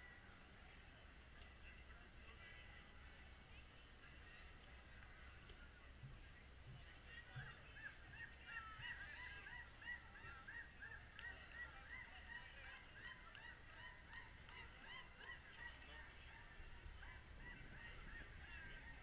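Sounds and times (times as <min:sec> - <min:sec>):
faint bird calls: 0:04.2 - 0:19.0.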